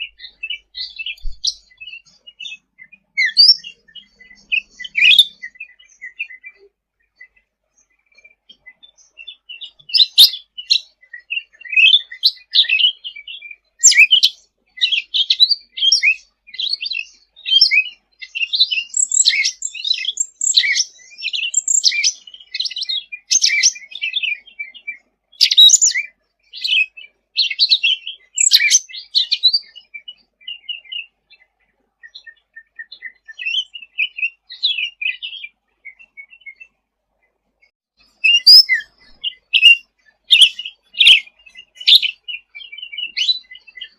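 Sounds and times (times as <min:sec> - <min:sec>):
songbird chirping: 0:00.0 - 0:43.9.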